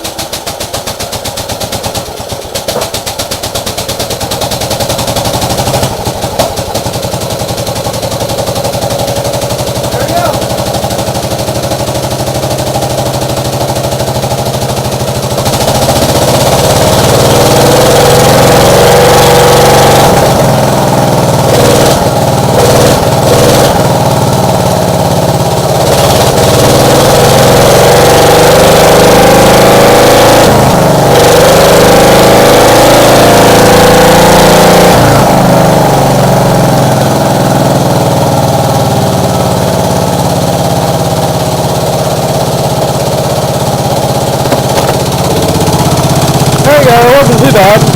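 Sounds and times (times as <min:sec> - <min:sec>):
tractor engine revving: 0:00.0 - 0:47.9.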